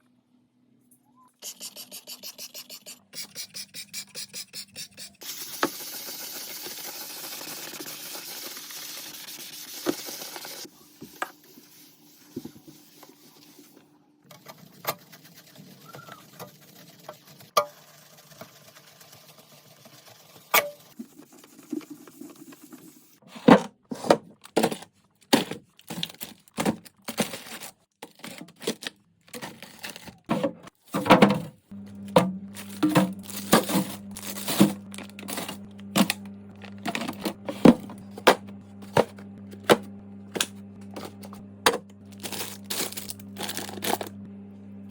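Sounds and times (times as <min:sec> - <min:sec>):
items knocking and clattering: 0:23.4 - 0:44.1.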